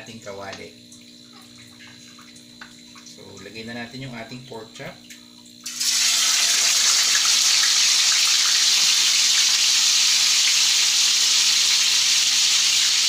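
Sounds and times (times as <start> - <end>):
meat sizzling in hot oil: 5.6 - 13.0.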